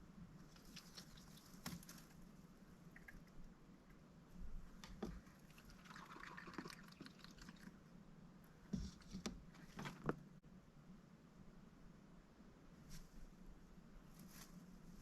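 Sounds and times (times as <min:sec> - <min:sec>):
soft rustle: 0:00.2 - 0:03.5, 0:12.7 - 0:15.0.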